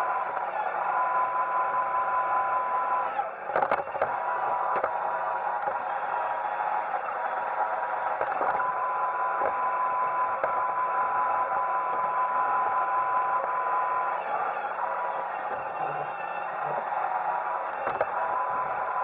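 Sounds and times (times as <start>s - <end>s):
robot vacuum whirring: 8.2s - 19.0s.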